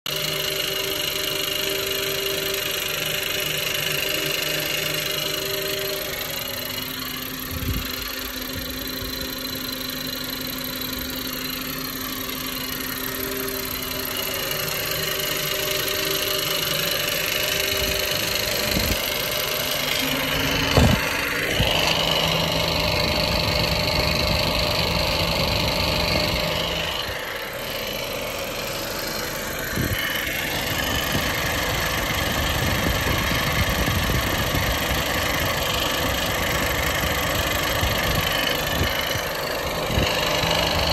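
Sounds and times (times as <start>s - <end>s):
car engine idling: 0.1s - 40.9s
engine ticking knock: 0.1s - 40.9s
sharp engine knocks: 20.5s - 21.7s.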